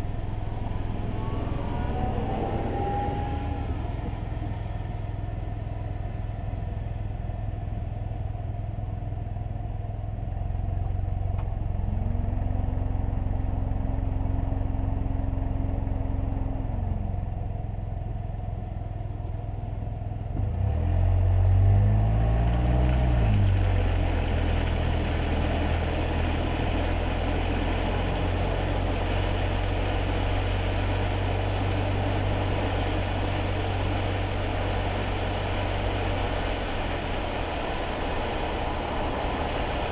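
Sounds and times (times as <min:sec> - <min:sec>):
car engine and road rumble: 0:00.0 - 0:39.9
tyres hissing on wet road: 0:22.7 - 0:39.9.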